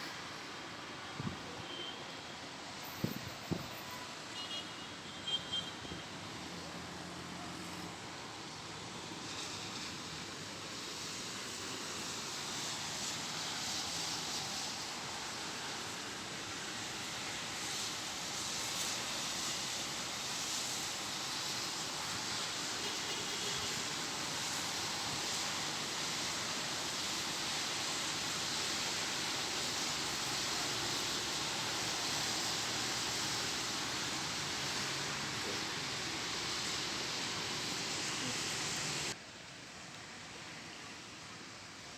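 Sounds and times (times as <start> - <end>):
rain falling: 6.2 - 41.9.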